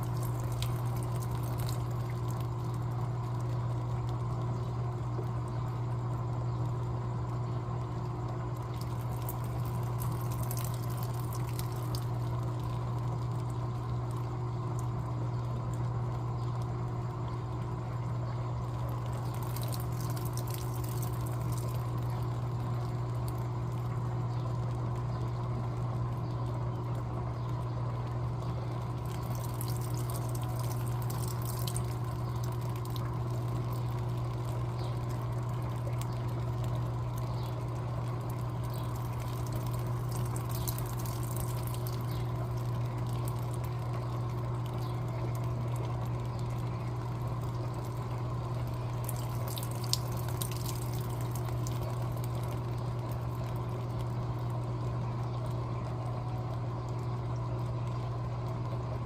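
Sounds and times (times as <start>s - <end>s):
water pouring into tub: 0.0s - 4.4s, 8.2s - 14.9s, 18.7s - 24.0s, 28.7s - 55.0s
low hum: 0.0s - 59.0s.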